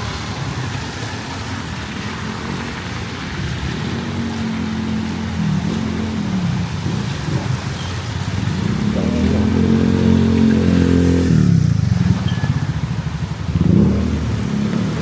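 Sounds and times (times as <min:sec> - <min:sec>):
vehicle engines passing by: 0:00.0 - 0:15.0.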